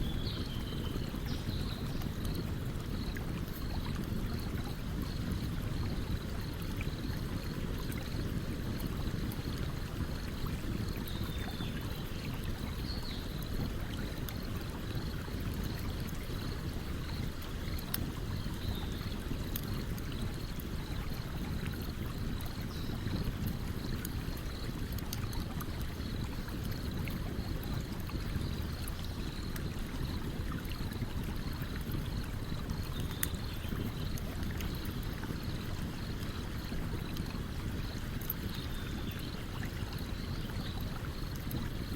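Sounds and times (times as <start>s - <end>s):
stream running: 0.0s - 41.9s
campfire crackling: 13.4s - 41.8s.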